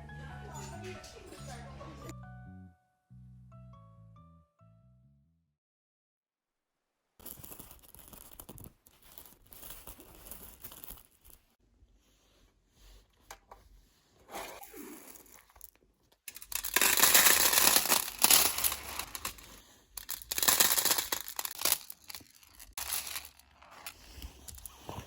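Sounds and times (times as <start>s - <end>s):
crinkling and tearing: 14.8s - 25.0s.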